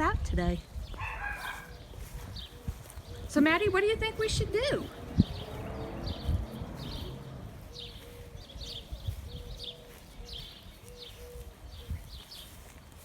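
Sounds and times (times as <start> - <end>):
birds chirping: 0.7 - 13.0.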